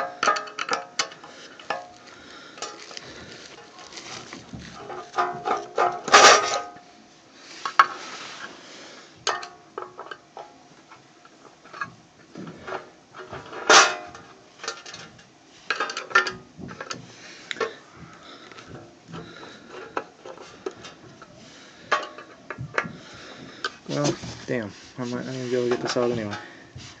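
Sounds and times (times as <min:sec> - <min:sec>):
metal hand tools clattering: 0:04.8 - 0:06.7.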